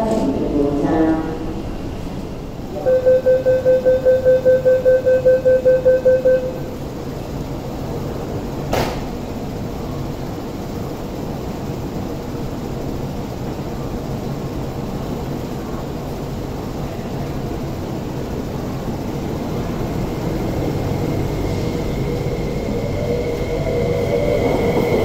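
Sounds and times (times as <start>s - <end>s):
electric train humming: 0.0s - 25.0s
rapid electronic beeping: 2.8s - 6.7s.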